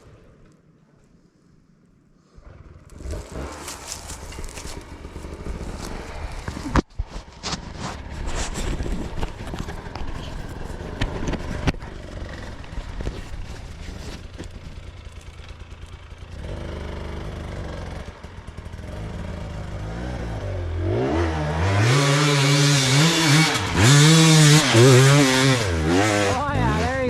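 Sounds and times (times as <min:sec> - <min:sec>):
dirt bike engine revving: 0:02.4 - 0:06.8, 0:16.2 - 0:27.0.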